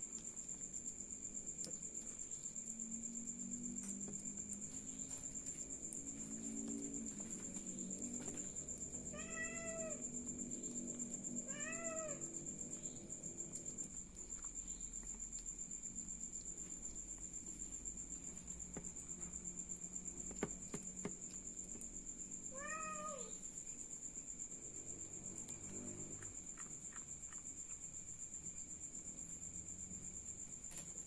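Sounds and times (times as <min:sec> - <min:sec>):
cat meowing: 0:09.1 - 0:10.0, 0:11.4 - 0:12.3, 0:22.5 - 0:23.4.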